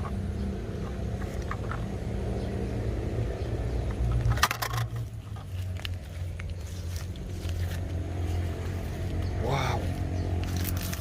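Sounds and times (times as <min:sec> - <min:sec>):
steady low rumble: 0:00.0 - 0:10.8
small hard objects clattering: 0:04.1 - 0:07.9, 0:10.4 - 0:11.0.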